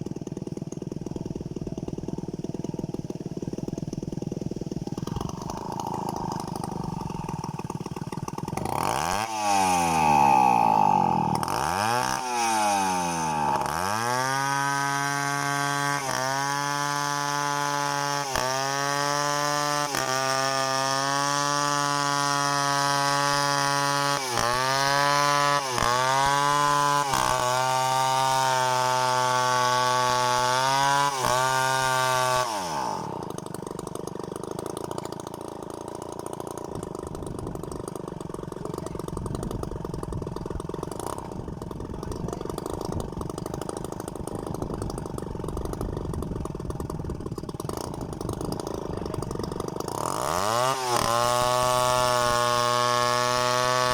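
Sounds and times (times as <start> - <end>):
chainsaw revving: 0.0 - 53.9.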